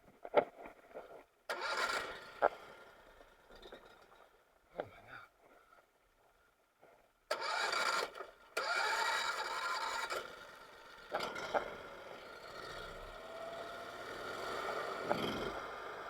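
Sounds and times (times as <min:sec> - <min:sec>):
boat motor starting and running: 0:01.5 - 0:02.6, 0:07.3 - 0:16.0.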